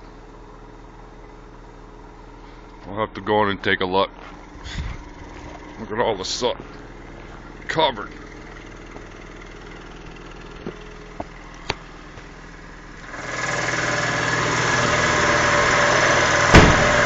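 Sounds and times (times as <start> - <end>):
machine humming: 4.1 - 17.0
heavy thump: 16.5 - 17.0.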